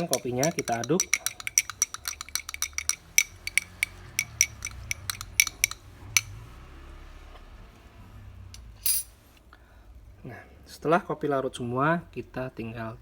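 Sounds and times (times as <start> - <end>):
spoon clinking against glass: 0.0 - 6.4.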